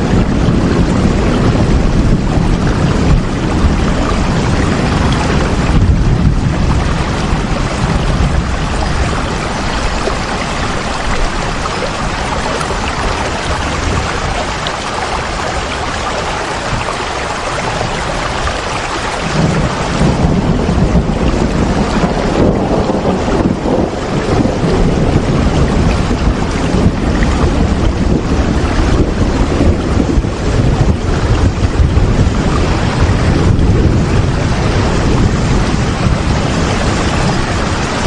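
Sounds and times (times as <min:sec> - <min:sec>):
deep low rumble: 0:00.0 - 0:15.6
steady rain hiss: 0:00.0 - 0:38.0.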